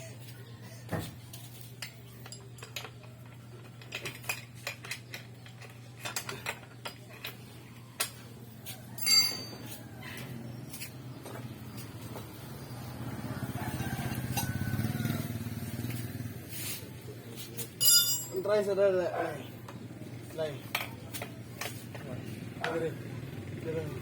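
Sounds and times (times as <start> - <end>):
metal parts clinking: 1.7 - 7.5, 9.0 - 9.7, 17.8 - 18.6.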